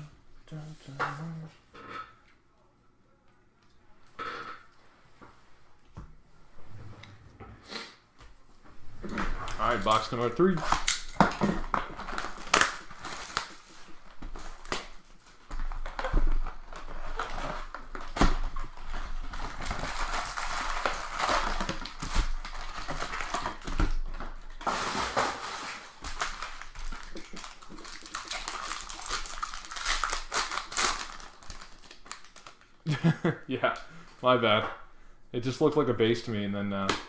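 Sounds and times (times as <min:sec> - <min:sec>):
cardboard and foil tearing: 0:09.5 - 0:32.8.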